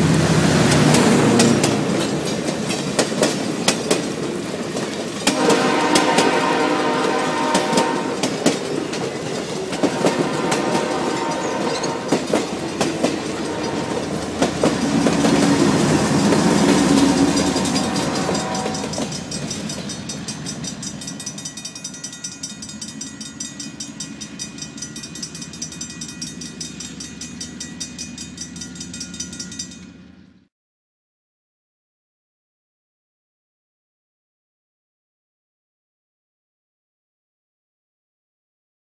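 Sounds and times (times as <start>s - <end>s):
diesel locomotive engine rumble: 0.0s - 30.5s
train wheels clacking over joints: 0.1s - 30.1s
steady ringing: 7.6s - 30.3s.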